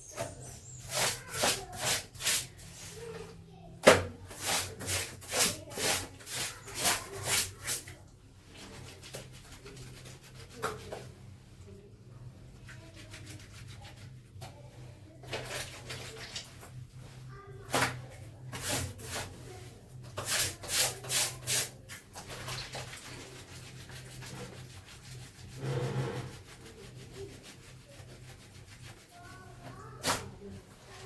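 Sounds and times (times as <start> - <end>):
clothes scrubbed by hand: 0.1 - 3.0, 4.3 - 11.1, 18.5 - 31.0.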